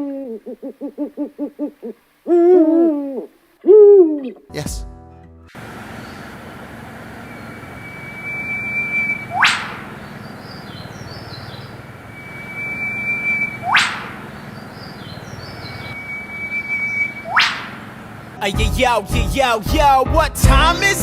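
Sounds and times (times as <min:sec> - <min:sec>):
faint bird chirps: 0:05.7 - 0:18.3
bird whistle and whip-crack call: 0:07.3 - 0:10.8, 0:12.1 - 0:15.1, 0:15.7 - 0:17.9.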